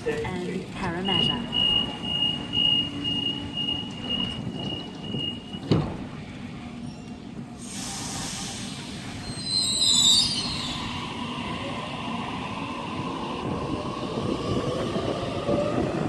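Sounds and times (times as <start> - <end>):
train wheel squeal: 1.1 - 5.8, 6.8 - 11.2
train hiss: 7.6 - 15.8.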